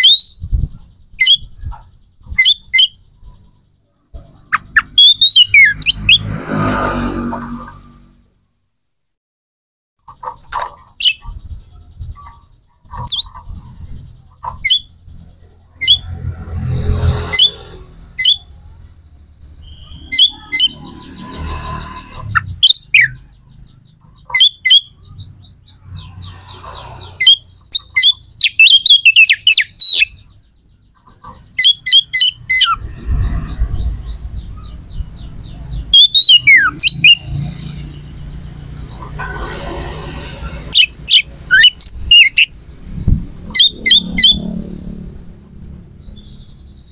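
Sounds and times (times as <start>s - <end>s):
bird chirping and trilling: 0.0s - 8.5s, 10.0s - 46.9s.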